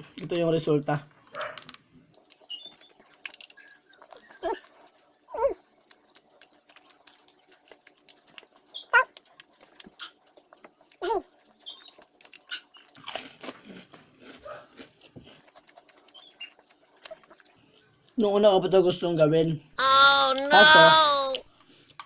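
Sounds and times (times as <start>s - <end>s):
dog yelping barks: 8.9s - 9.1s.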